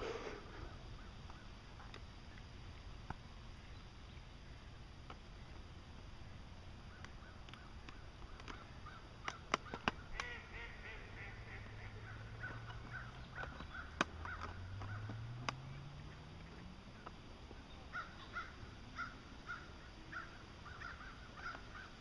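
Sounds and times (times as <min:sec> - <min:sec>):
sharp clicks: 0:07.0 - 0:10.4, 0:12.4 - 0:15.7
low rising hum: 0:10.7 - 0:20.7.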